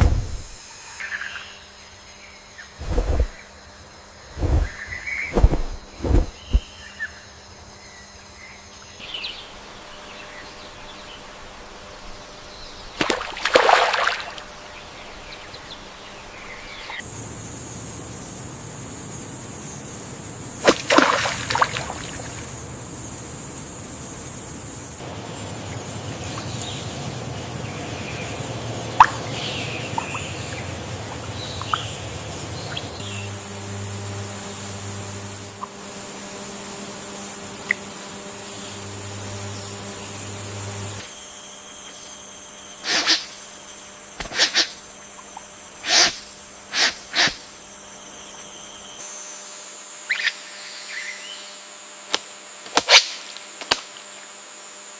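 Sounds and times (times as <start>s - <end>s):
hiss of water and wind: 2.8s - 3.4s, 4.2s - 6.6s, 16.2s - 35.7s
short bird chirps: 4.5s - 6.8s
loud water splashes: 13.0s - 14.5s, 20.6s - 22.4s.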